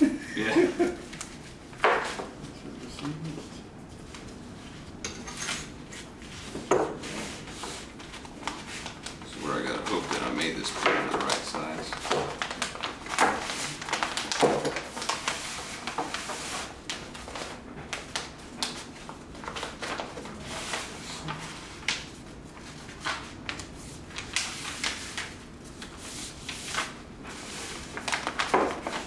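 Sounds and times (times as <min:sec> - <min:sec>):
stiff paper rustling and crinkling: 0:05.9 - 0:29.0.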